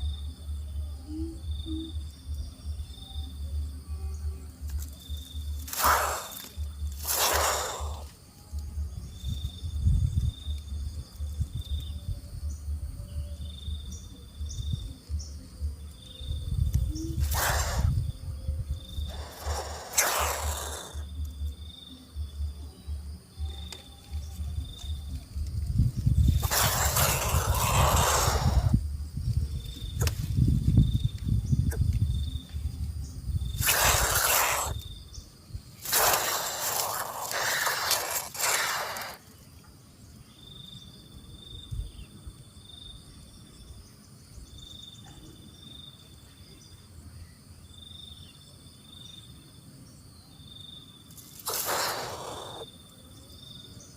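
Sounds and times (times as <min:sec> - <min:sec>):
insect trilling: 0:00.0 - 0:39.7, 0:50.6 - 0:53.6
short loud hiss: 0:05.7 - 0:08.1, 0:17.2 - 0:18.0, 0:19.1 - 0:21.0, 0:26.4 - 0:28.7, 0:33.6 - 0:34.8, 0:35.8 - 0:39.2, 0:51.4 - 0:52.6.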